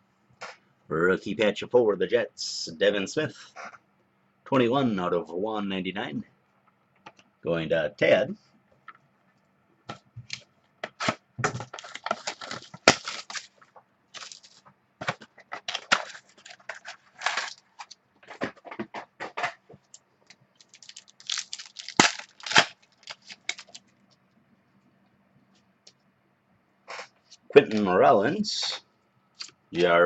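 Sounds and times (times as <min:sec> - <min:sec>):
cards being handled: 0:10.3 - 0:20.0, 0:20.6 - 0:23.8
card pack wrapper tearing: 0:11.7 - 0:13.6, 0:14.2 - 0:14.6, 0:15.6 - 0:18.0, 0:20.6 - 0:23.8.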